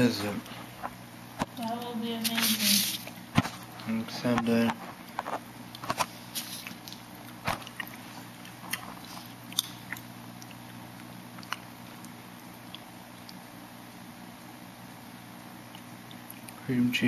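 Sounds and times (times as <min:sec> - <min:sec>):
steady low hum: 0:00.0 - 0:17.0
soft chewing mouth clicks: 0:05.1 - 0:13.4, 0:15.7 - 0:16.6.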